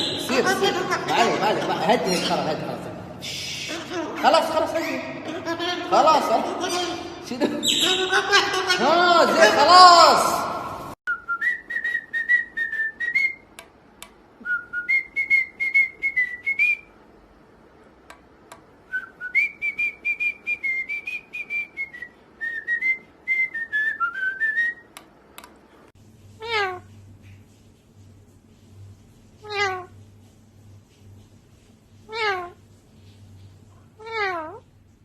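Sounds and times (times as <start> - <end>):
parrot whistling a tune: 11.1 - 13.4, 14.4 - 16.9, 18.9 - 24.9
parrot clicks: 24.9 - 25.6.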